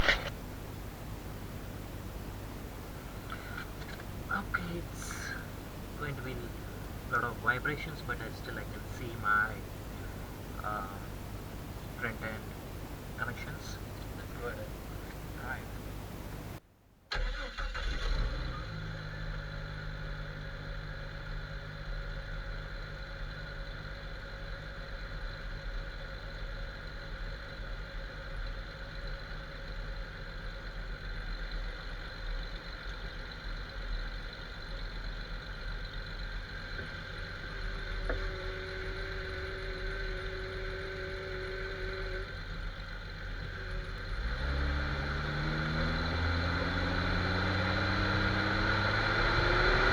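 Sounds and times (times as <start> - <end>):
car engine running: 0.0 - 16.6, 17.2 - 49.9
faint whine: 0.0 - 16.6, 18.4 - 49.7.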